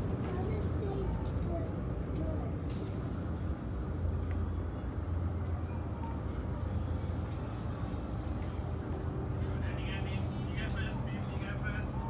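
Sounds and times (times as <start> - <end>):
ferry engines droning: 6.3 - 12.0.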